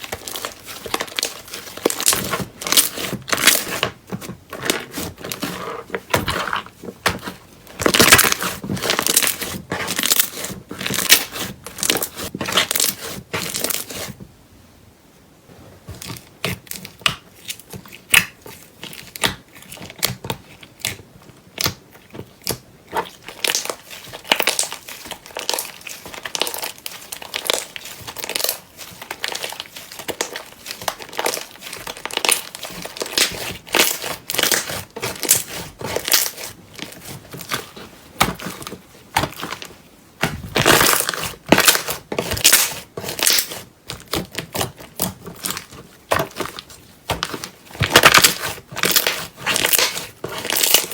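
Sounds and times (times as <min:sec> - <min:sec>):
slime squelching and popping: 0:16.1 - 0:50.9.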